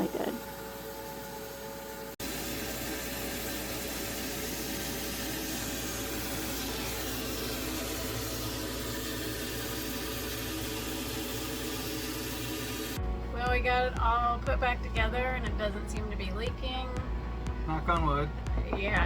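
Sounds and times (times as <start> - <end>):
vacuum sucking water: 0.0 - 13.0.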